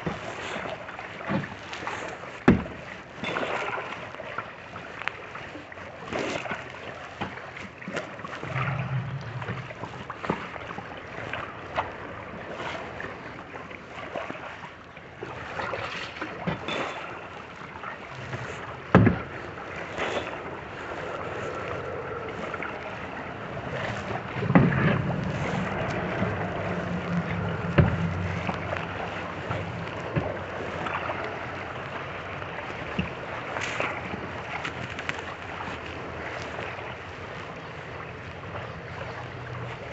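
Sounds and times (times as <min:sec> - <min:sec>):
paddle blades splashing water: 0:00.0 - 0:39.9
low hum: 0:08.3 - 0:10.4, 0:19.6 - 0:34.2.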